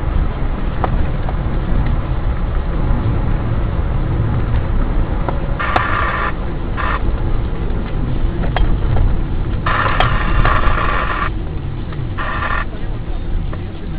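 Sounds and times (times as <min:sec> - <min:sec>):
car engine and road rumble: 0:00.0 - 0:13.9
electronic tone beeping: 0:05.6 - 0:07.0, 0:09.7 - 0:11.3, 0:12.2 - 0:12.7.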